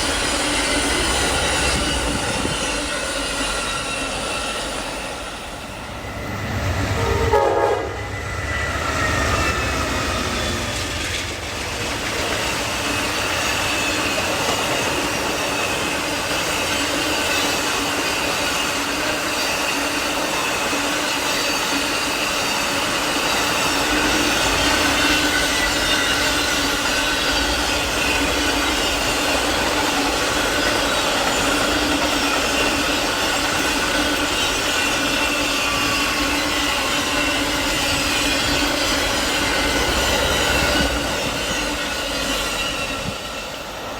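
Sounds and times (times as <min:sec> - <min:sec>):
high wheel squeal: 0:00.0 - 0:11.6, 0:12.2 - 0:43.9
train cars rumbling on rails: 0:00.0 - 0:43.9.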